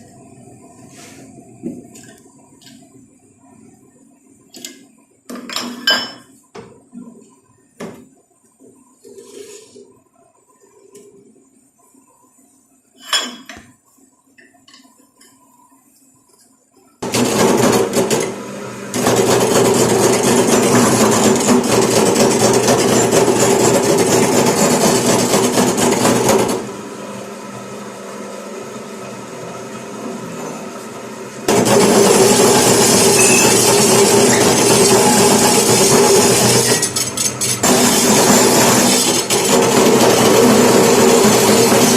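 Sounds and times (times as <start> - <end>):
power tool running on metal: 17.0 - 26.7, 31.5 - 41.9.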